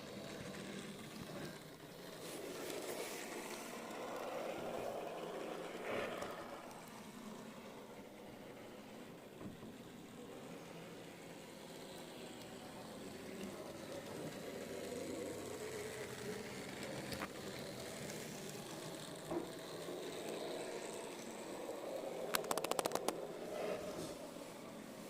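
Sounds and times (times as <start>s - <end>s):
model train running on track: 0.0s - 25.0s
sharp clicks: 22.3s - 23.2s.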